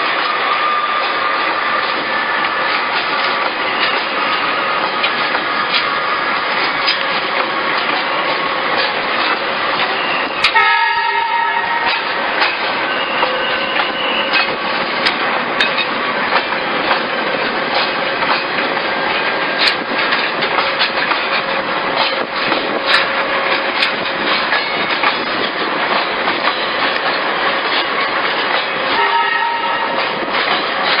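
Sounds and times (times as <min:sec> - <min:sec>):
train wheels clattering over rails: 0:00.0 - 0:31.0
train horn: 0:10.5 - 0:12.1, 0:28.9 - 0:30.1.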